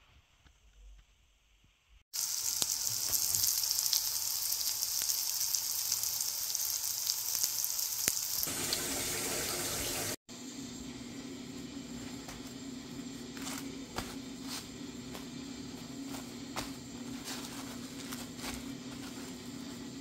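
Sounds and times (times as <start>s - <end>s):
eggs frying: 2.1s - 10.2s
onions sizzling in a pan: 2.1s - 10.2s.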